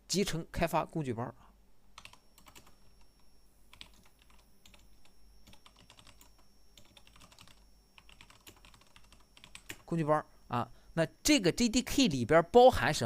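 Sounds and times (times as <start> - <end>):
faint keyboard typing: 1.9 - 10.0.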